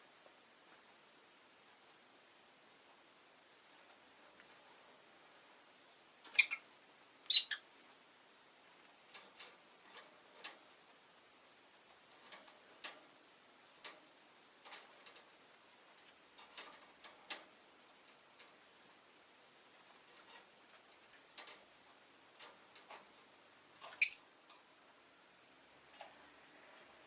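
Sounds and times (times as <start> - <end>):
lovebird chirping: 6.3 - 7.6, 23.9 - 24.3.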